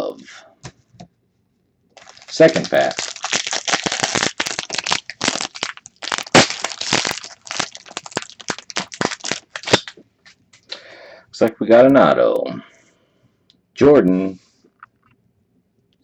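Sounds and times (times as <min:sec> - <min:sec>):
foil wrapper tearing and crinkling: 0:02.0 - 0:10.0.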